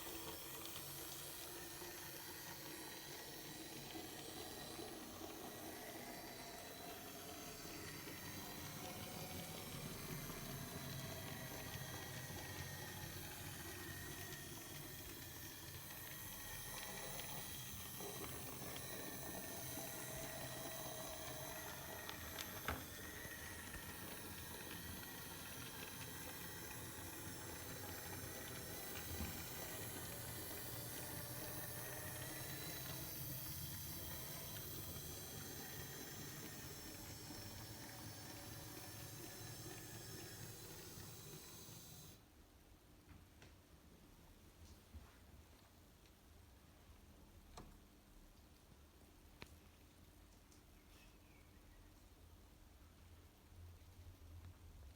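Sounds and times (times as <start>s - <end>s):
model locomotive rumble and hiss: 0.0s - 42.2s
small motor whine: 0.0s - 42.2s.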